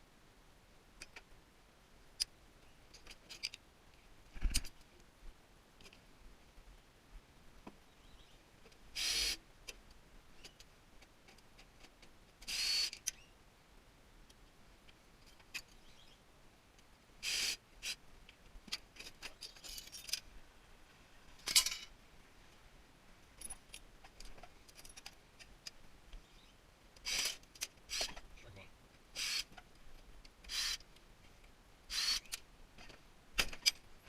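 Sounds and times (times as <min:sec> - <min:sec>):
small metal parts rattling: 0:19.0 - 0:20.2, 0:21.4 - 0:21.9
power tool bursts: 0:31.9 - 0:32.3.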